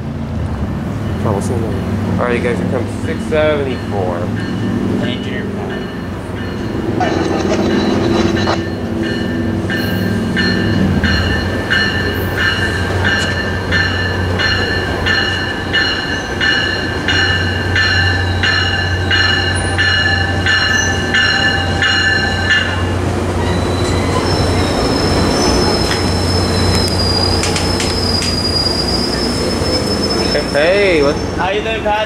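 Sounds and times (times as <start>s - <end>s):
low drone of train: 0.0s - 32.0s
bell ringing: 3.5s - 24.7s
high wheel squeal: 4.4s - 32.0s.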